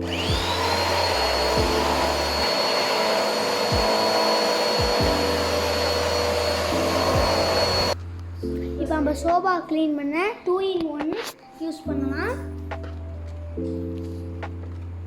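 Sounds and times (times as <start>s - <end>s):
vacuum cleaner running: 0.0s - 8.0s.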